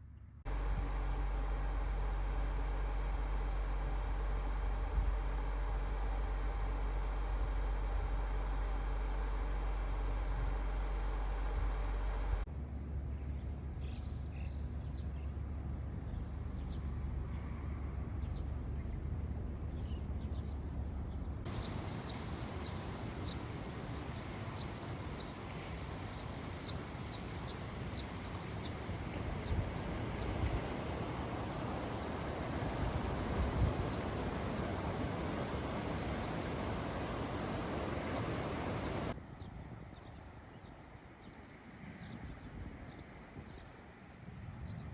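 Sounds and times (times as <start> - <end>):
low hum: 0.0 - 14.1, 16.2 - 39.2
steady rushing noise: 21.5 - 39.2.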